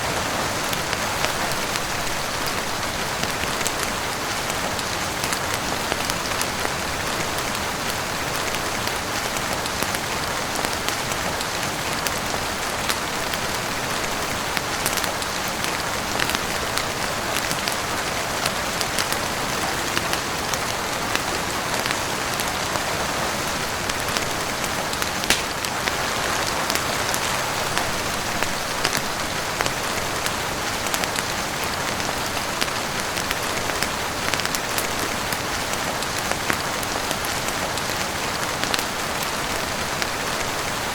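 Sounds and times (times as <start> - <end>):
heavy rain on a roof: 0.0 - 40.9
faint fireplace crackle: 23.7 - 31.2.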